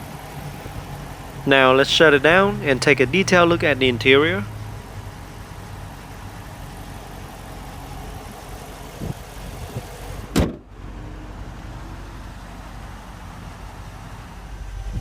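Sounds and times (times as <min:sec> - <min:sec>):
car engine idling: 0:00.0 - 0:08.9.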